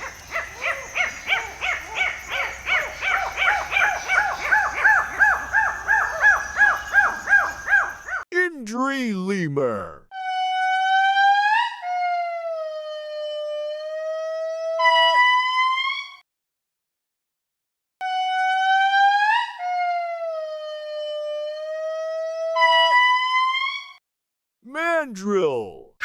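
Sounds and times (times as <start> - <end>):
lemur wailing call: 0.0 - 8.2.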